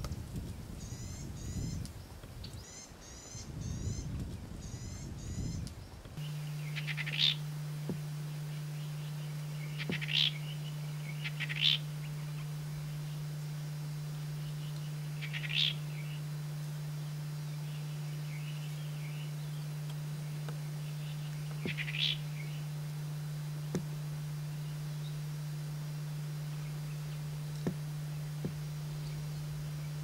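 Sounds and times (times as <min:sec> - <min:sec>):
steady low hum: 0:00.0 - 0:30.0
faint bird chirps: 0:00.8 - 0:13.6, 0:14.2 - 0:19.8, 0:20.4 - 0:22.8
bird harsh chattering call: 0:06.6 - 0:07.4, 0:09.6 - 0:12.4, 0:15.2 - 0:15.9, 0:21.6 - 0:22.2.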